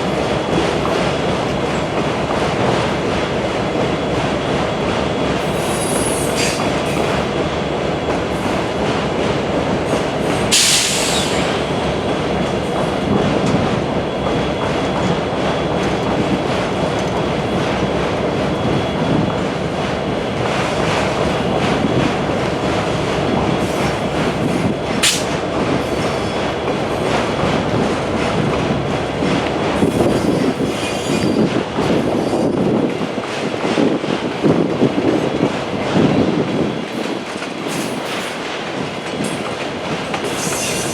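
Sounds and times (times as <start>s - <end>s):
train wheels on rail: 0.0s - 40.9s
brief high hiss: 10.5s - 11.5s
sharp squeal: 29.8s - 31.5s, 40.3s - 40.9s.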